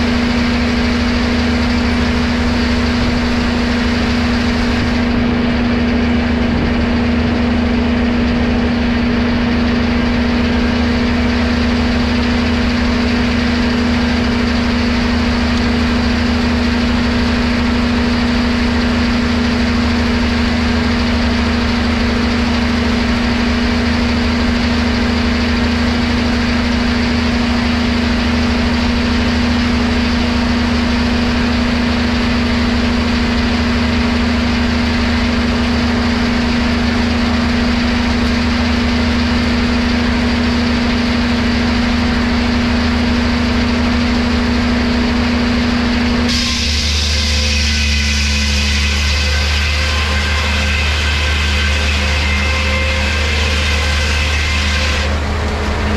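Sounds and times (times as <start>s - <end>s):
machinery humming: 0.0s - 55.9s.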